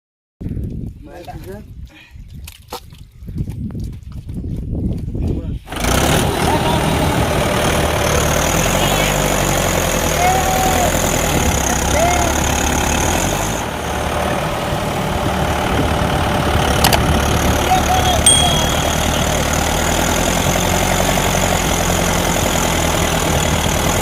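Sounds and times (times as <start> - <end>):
tractor diesel engine running: 5.8 - 24.0.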